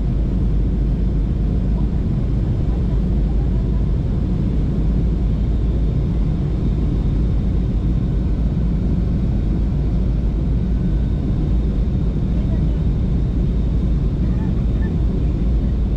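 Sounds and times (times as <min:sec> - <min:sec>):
low rumble of moving vehicle: 0:00.0 - 0:15.9.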